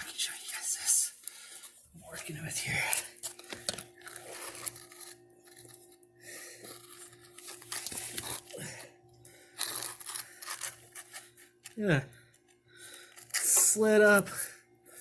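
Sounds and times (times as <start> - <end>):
faint hum: 0.0 - 15.0
camera handling rustling: 3.2 - 6.0, 6.9 - 8.5.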